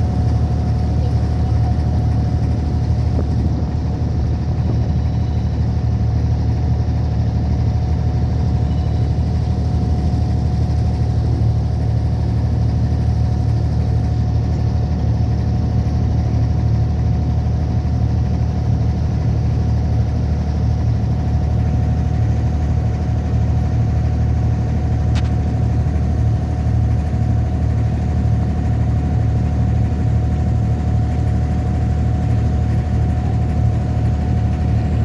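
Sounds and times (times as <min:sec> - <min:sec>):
boat engine droning: 0:00.0 - 0:35.0
sharp click: 0:25.1 - 0:25.4.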